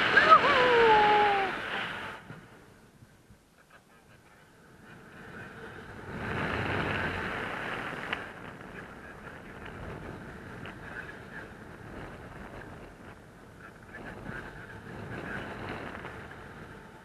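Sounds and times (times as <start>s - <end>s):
wind buffeting microphone: 4.6s - 17.0s.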